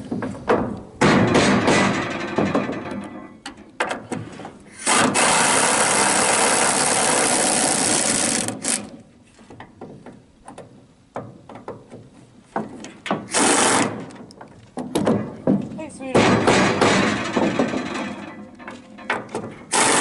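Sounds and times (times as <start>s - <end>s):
knocks and clicks handling tools: 14.0s - 19.9s
power tool running: 19.7s - 20.0s.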